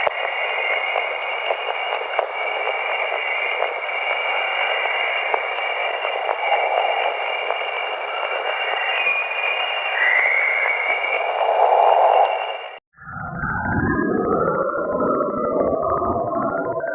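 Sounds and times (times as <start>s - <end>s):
static hiss: 0.0s - 8.8s
steady high tones: 0.0s - 16.8s.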